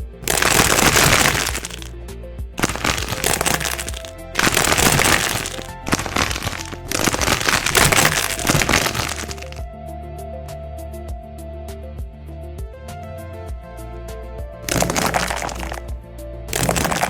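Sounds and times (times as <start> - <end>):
dense crackling and crunching: 0.0 - 1.9, 2.6 - 9.6, 14.7 - 15.9, 16.5 - 17.0.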